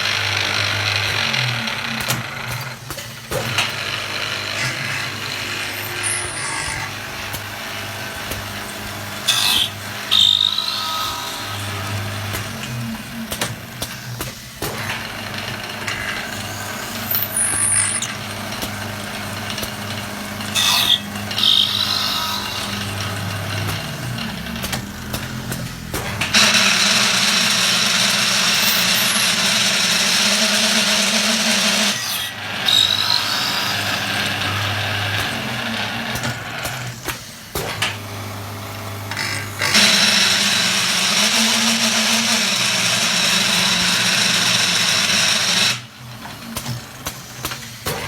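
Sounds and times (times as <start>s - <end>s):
wood lathe motor hum: 0.0s - 2.8s, 3.5s - 14.2s, 14.8s - 37.0s, 38.3s - 46.6s
short squeals: 5.7s - 6.9s.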